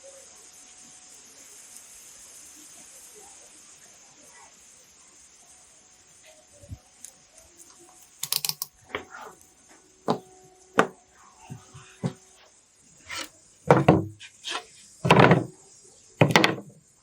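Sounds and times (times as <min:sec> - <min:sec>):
sharp knocks and clicks: 0:10.8 - 0:12.2, 0:13.1 - 0:15.5, 0:16.2 - 0:16.8
scraping strokes: 0:13.0 - 0:15.5.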